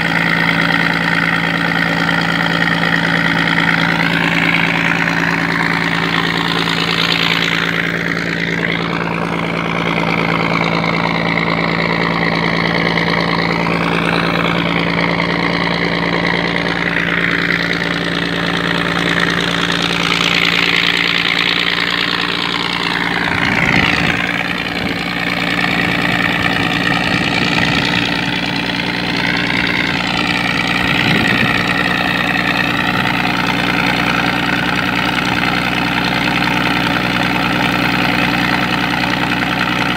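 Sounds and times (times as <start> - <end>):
diesel engine running: 0.0 - 39.9
wavering high whine: 3.0 - 34.6.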